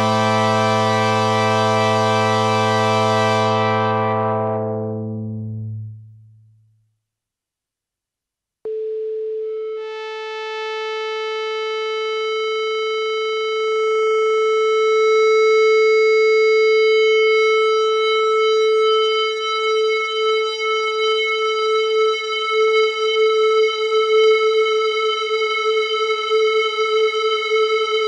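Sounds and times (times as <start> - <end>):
synthesizer sustained note: 0.0 - 6.5.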